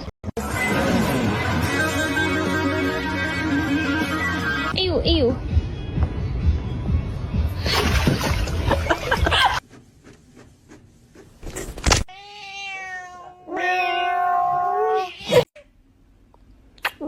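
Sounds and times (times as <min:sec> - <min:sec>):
cat yowling: 0:12.1 - 0:15.5.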